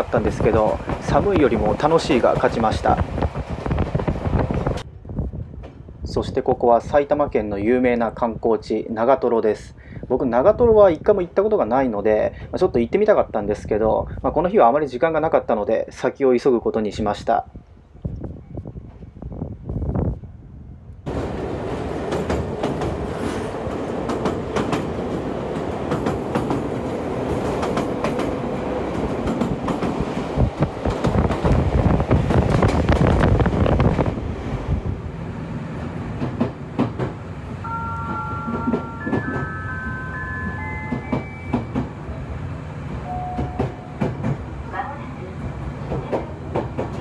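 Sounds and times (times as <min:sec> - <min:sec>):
electric train rumble: 0:00.0 - 0:06.1, 0:18.7 - 0:47.0.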